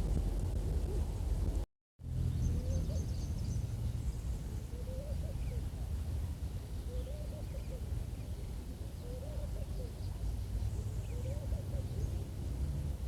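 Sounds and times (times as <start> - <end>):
steady low rumble: 0.0 - 1.7.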